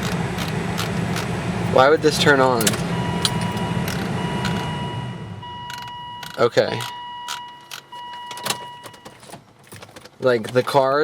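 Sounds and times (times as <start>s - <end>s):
sharp clicks: 0.0s - 4.8s
radiator cooling fans whooshing: 0.0s - 5.4s
pulsing high electronic tone: 2.1s - 7.5s.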